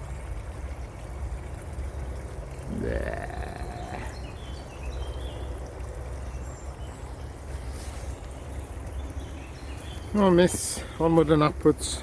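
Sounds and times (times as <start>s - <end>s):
rustle: 6.9s - 11.4s.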